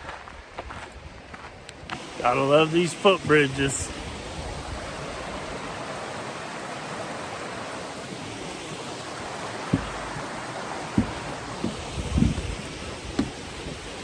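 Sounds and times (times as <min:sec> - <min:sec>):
creek water rushing: 0:01.8 - 0:14.0
low thump: 0:09.7 - 0:10.3, 0:10.9 - 0:13.8.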